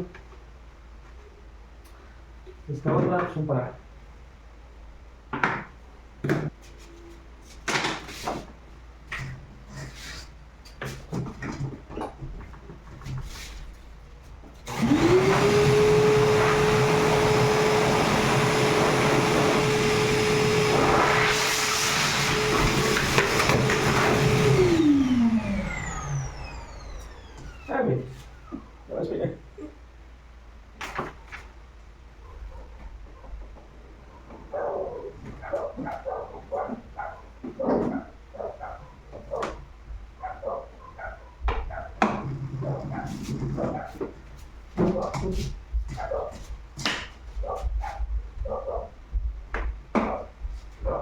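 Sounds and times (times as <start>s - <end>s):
shop vacuum motor running: 14.6s - 28.8s
dog barking: 32.2s - 33.3s, 34.1s - 39.6s, 40.2s - 42.0s, 42.8s - 44.0s, 45.9s - 46.4s, 47.4s - 49.0s.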